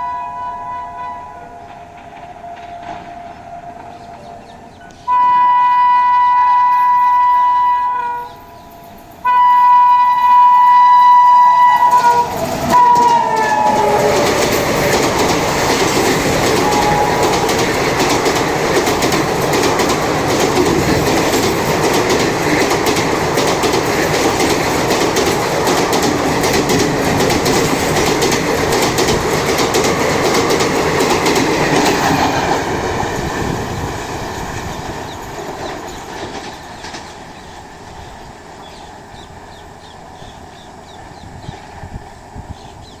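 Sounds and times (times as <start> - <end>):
locomotive horn blasts: 0.0 - 14.5, 16.5 - 17.7
train wheels clickety-clack: 1.6 - 5.0, 11.8 - 43.0.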